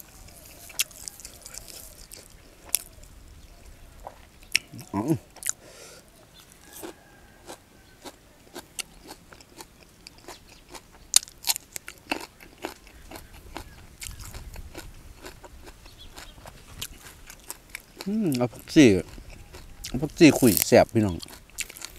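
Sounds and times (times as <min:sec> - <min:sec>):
close chewing and crunching: 0:00.0 - 0:21.9.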